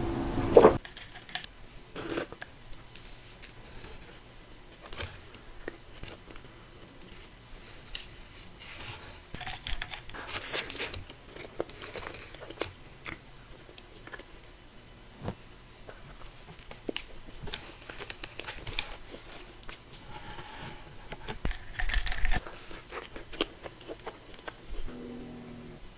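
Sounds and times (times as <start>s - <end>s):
cookie bites and chewing: 9.4s - 14.6s, 21.2s - 24.9s.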